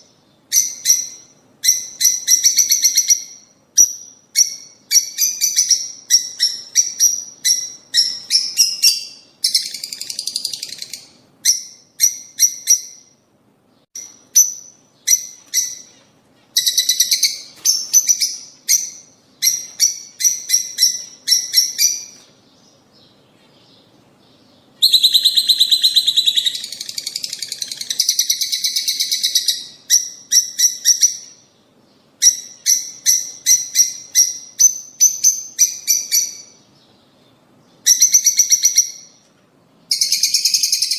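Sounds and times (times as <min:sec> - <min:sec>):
lovebirds chirping: 0:00.0 - 0:40.9
buzzy bird chattering: 0:24.8 - 0:31.4.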